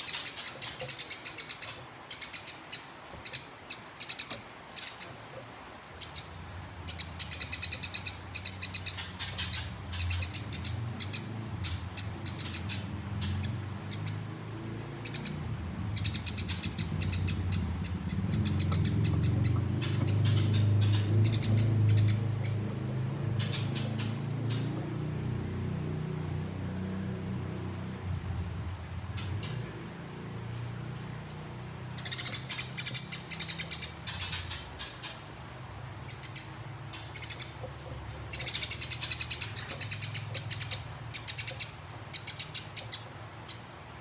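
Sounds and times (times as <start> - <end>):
sparrows chattering: 0.0 - 43.8.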